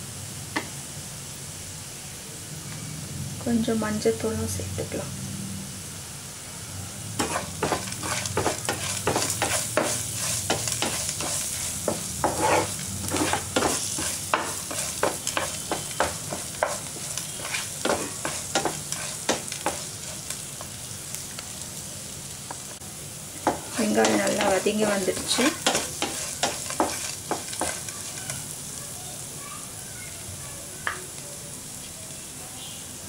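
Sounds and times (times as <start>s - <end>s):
vegetables sizzling in hot oil: 0.0s - 33.0s
wooden spatula scraping a pan: 7.2s - 20.6s, 23.4s - 28.5s.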